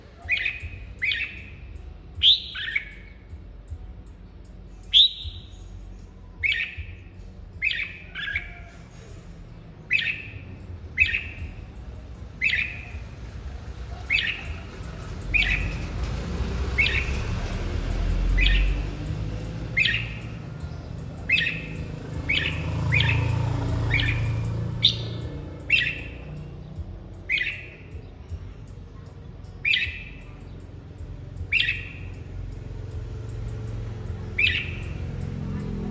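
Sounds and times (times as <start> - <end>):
bird giving sharp calls: 2.2 - 3.1, 9.9 - 11.5, 13.9 - 19.1, 19.7 - 26.5, 31.5 - 32.2, 33.6 - 35.9.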